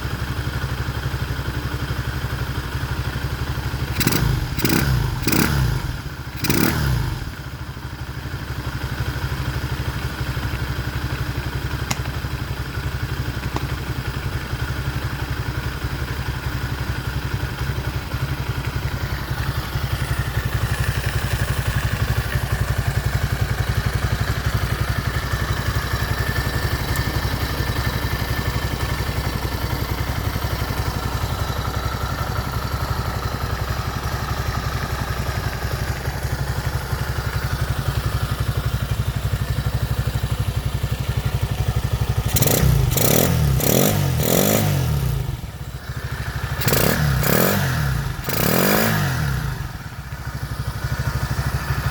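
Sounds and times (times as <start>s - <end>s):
engine revving and idling: 3.7s - 7.7s, 36.8s - 51.9s.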